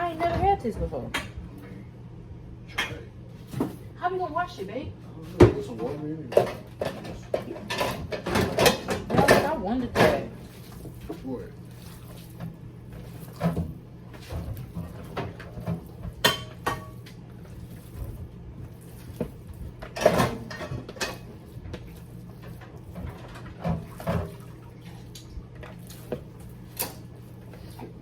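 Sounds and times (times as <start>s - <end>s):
steady low hum: 0.0s - 28.0s
dishes and utensils clinking: 5.4s - 10.6s, 13.0s - 17.2s, 18.9s - 24.6s
dishes clattering: 5.4s - 11.2s, 13.0s - 18.2s, 18.8s - 28.0s.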